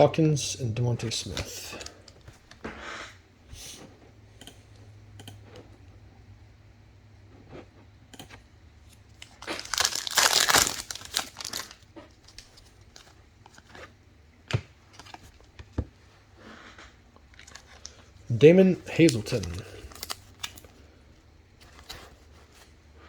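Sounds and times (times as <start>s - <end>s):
plastic wrapper tearing and crinkling: 9.2s - 13.7s, 17.4s - 18.0s, 18.9s - 20.7s.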